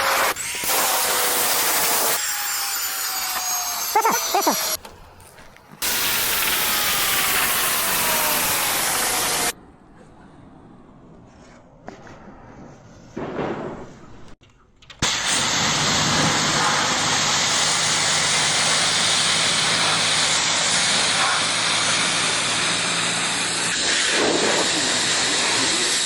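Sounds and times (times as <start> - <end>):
pressure washer spraying: 5.8 - 9.6, 15.0 - 26.0.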